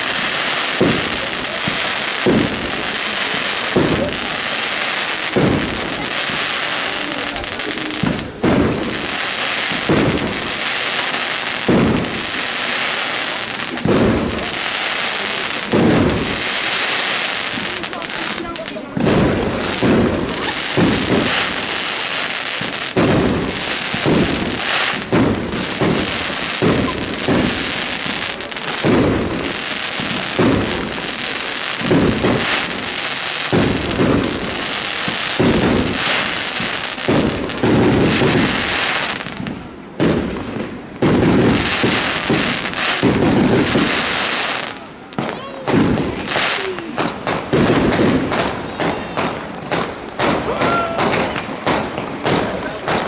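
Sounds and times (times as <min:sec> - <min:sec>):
fireworks booming: 0:00.0 - 0:53.0
fireworks crackling: 0:00.0 - 0:53.0.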